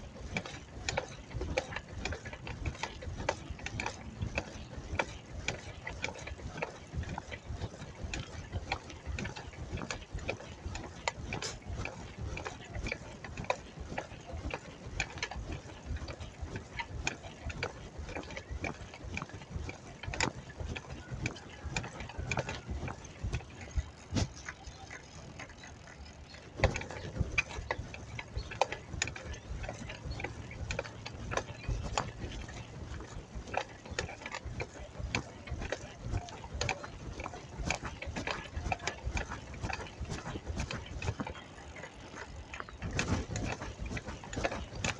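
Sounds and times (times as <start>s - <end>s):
bicycle freewheel clicking: 0.3s - 44.9s.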